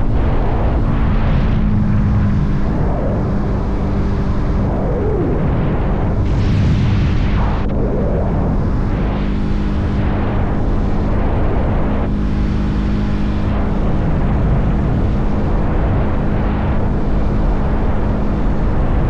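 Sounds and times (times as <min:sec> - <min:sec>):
motorcycle engine cruising: 0:00.0 - 0:05.2
road rush: 0:00.0 - 0:19.0
wind rush: 0:00.0 - 0:19.0.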